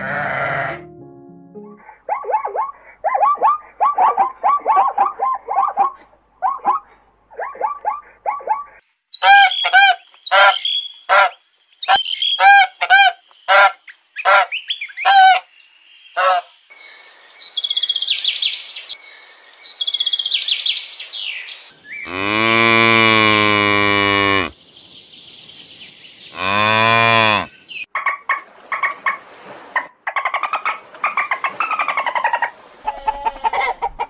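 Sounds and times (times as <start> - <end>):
cow mooing: 0.0 - 0.9, 22.1 - 24.5, 26.4 - 27.5.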